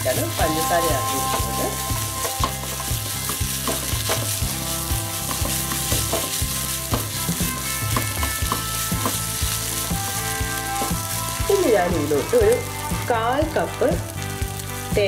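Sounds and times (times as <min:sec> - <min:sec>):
masala sizzling in oil: 0:00.0 - 0:15.0
spatula scraping and knocking pan: 0:00.4 - 0:12.4.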